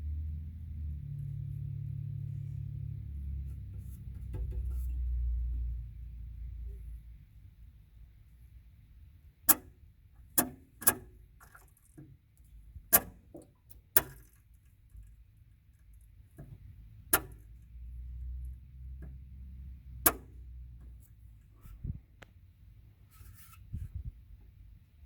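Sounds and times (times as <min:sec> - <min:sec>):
low steady rumble: 0:00.0 - 0:10.3.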